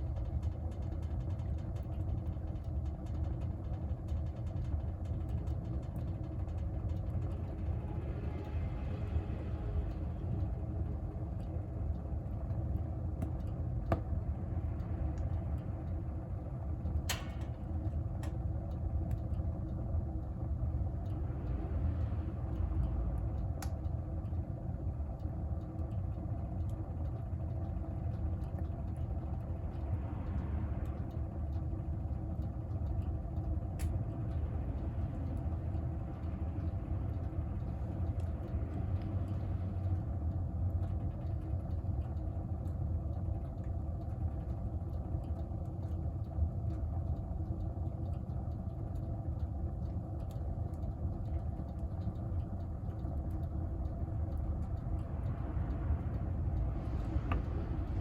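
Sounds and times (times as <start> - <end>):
stove draft rumbling: 49.5 - 58.0.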